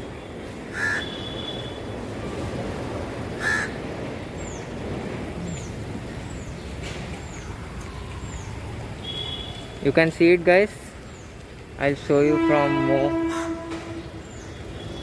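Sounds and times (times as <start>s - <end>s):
crow cawing: 0.7s - 1.2s, 3.4s - 3.8s, 13.3s - 13.6s.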